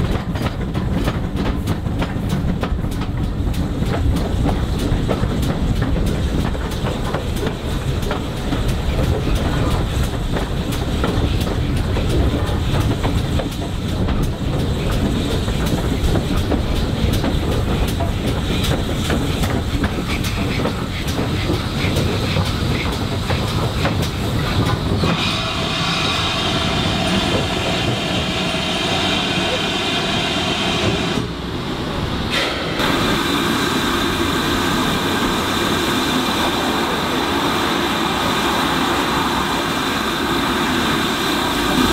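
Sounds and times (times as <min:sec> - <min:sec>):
wheels clicking over rail joints: 0:00.0 - 0:25.2
steam train rumbling: 0:00.0 - 0:41.9.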